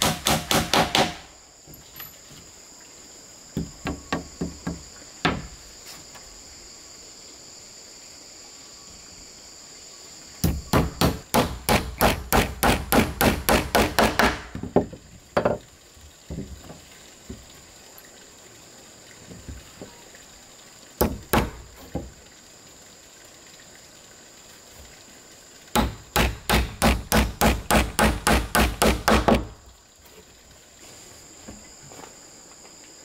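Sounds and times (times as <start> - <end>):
high insect buzz: 0.0 - 33.0.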